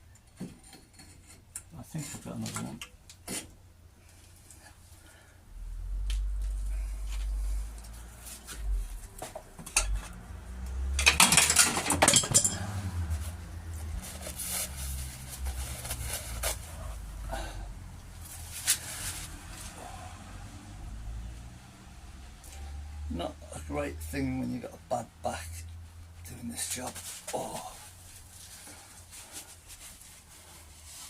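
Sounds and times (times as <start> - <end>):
low rumble: 5.4 - 9.1
metal tools clinking: 11.0 - 12.9.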